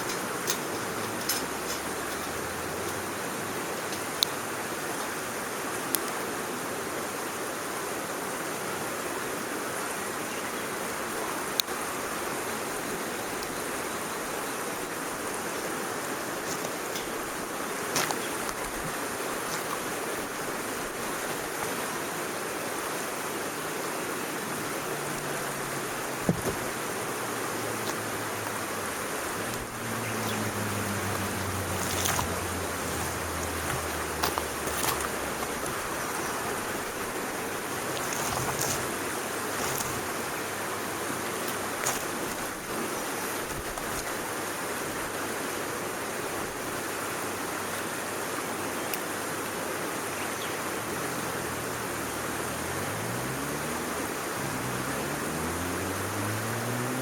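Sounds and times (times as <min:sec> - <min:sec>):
low hum rising in pitch: 0:29.4 - 0:36.4.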